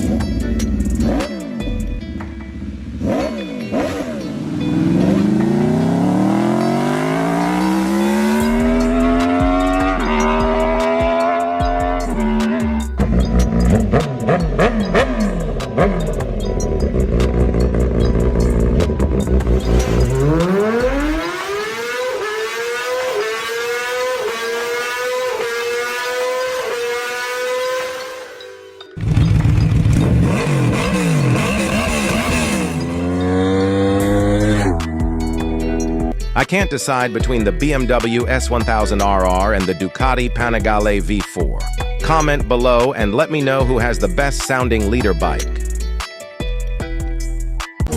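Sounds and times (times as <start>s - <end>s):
music with deep bass: 0.0s - 27.9s, 28.8s - 47.9s
motorcycle engine accelerating: 2.4s - 36.2s.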